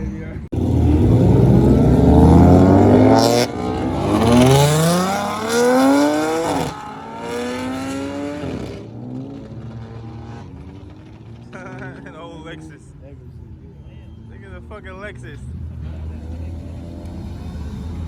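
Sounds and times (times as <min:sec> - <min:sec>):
car engine revving through gears: 0:00.5 - 0:11.5.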